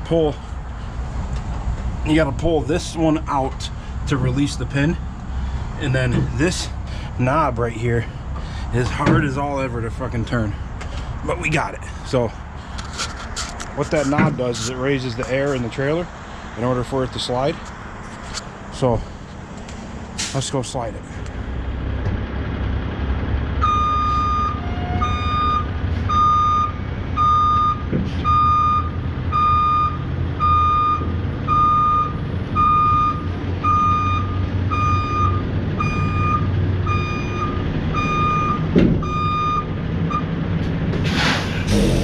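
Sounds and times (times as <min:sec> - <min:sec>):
diesel truck engine running: 0:00.0 - 0:42.0
back-up alarm beeping: 0:23.6 - 0:40.3.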